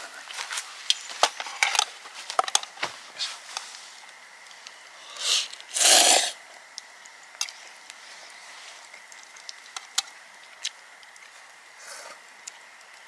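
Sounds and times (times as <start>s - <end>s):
person slurping pasta: 5.0s - 6.4s.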